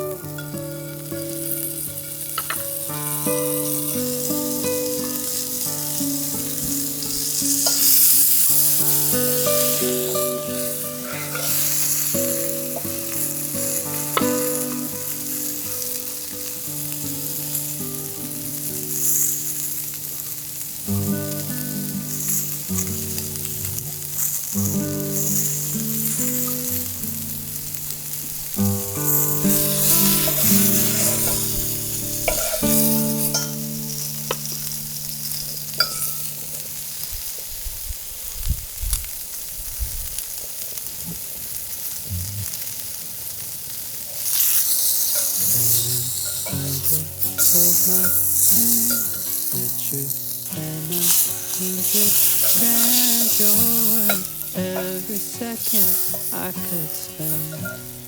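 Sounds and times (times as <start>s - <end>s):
steak sizzling in a frying pan: 0.0s - 58.0s.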